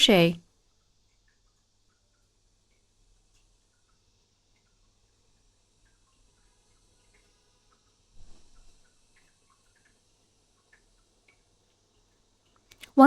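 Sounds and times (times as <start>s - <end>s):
crochet hook ticks: 12.6s - 13.0s.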